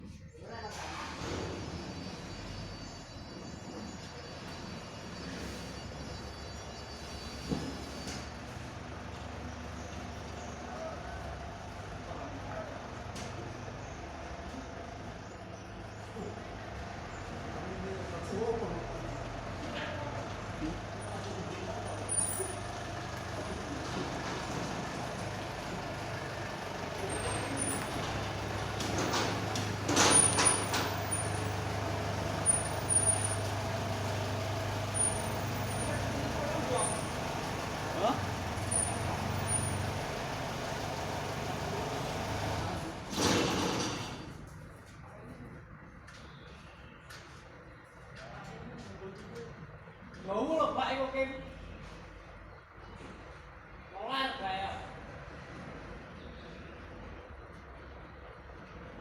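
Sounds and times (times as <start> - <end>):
truck diesel engine running: 0.8 - 44.4.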